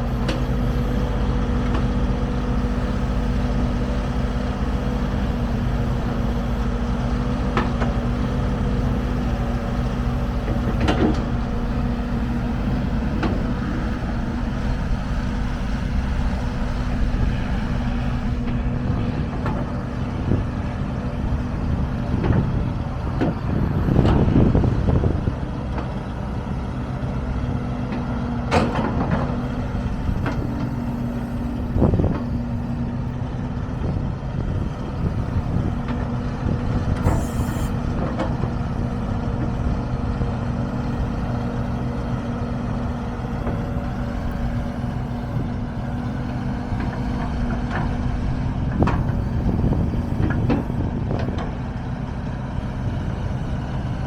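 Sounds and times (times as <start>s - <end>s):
excavator diesel engine running: 0.0s - 54.0s
short hiss: 37.1s - 37.8s.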